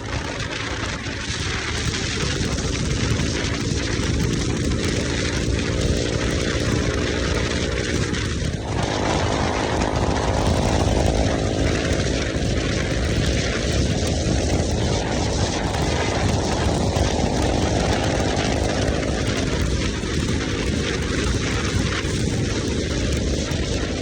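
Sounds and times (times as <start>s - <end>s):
motorcycle engine revving: 0.0s - 24.0s
steady rushing noise: 0.0s - 24.0s.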